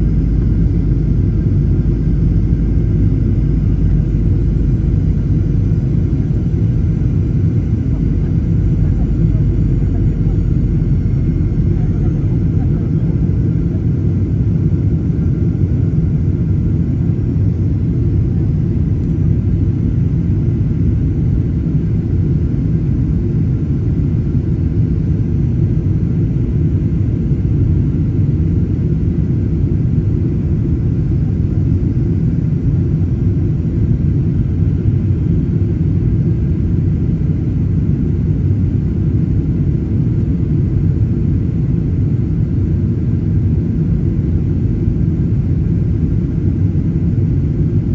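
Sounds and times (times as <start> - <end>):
jet engines rumbling in cabin: 0.0 - 47.9.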